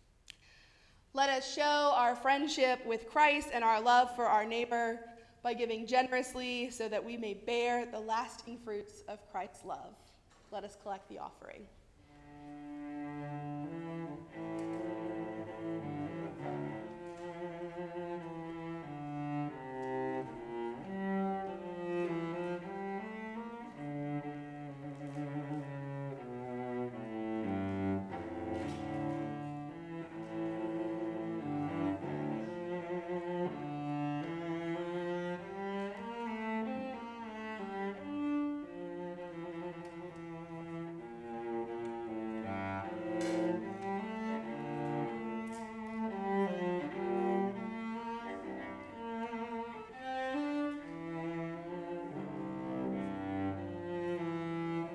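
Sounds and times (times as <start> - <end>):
cello playing held notes: 12.0 - 54.9
slow bowed string music: 12.0 - 54.9.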